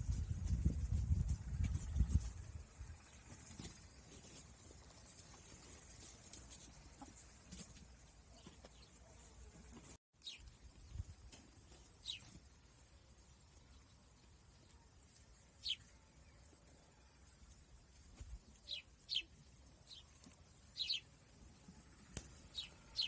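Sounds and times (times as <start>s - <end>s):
faint bird chirps: 10.2s - 11.1s, 11.9s - 12.4s, 19.9s - 21.1s.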